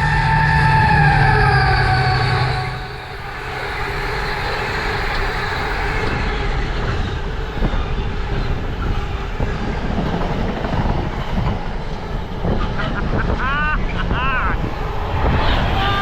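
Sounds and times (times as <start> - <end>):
falling horn-like tone: 0.0 - 6.2
train passing: 0.0 - 16.0.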